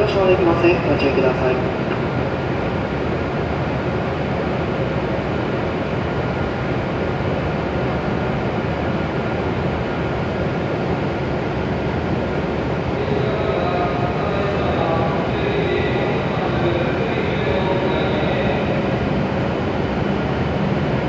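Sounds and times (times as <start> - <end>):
train rumble and hiss: 0.0 - 21.0.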